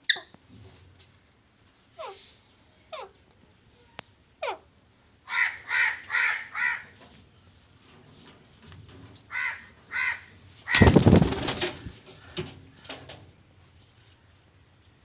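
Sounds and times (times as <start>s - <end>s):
parrot squawks: 4.4s - 4.6s.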